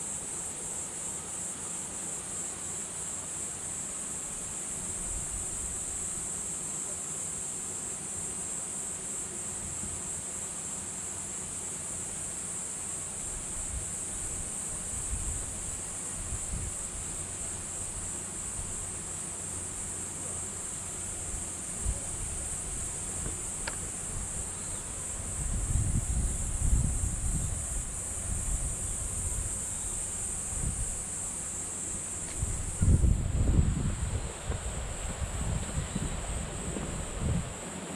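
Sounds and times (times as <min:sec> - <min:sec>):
insects chirring: 0:00.0 - 0:37.9.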